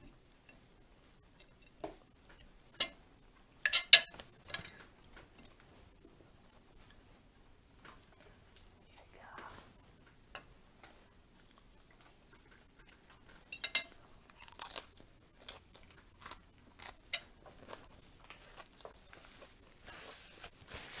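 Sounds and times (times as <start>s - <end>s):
lettuce crunching while chewed: 13.2s - 21.0s.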